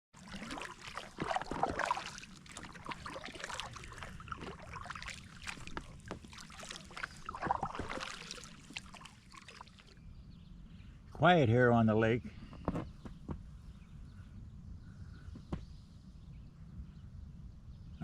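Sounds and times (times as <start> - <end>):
water drips and clicks: 0.2 - 9.9
paddle swishing and splashing: 0.2 - 10.0.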